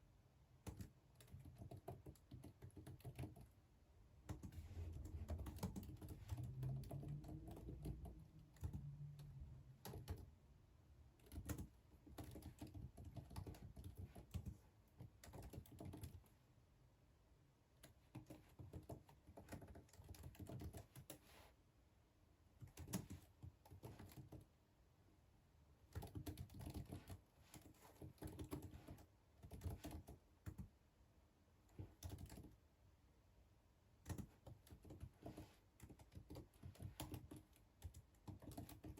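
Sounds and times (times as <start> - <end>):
computer keyboard typing: 0.6 - 3.6, 4.2 - 10.3, 11.2 - 16.3, 17.8 - 21.2, 22.6 - 24.5, 25.8 - 30.7, 31.7 - 32.6, 34.0 - 38.9.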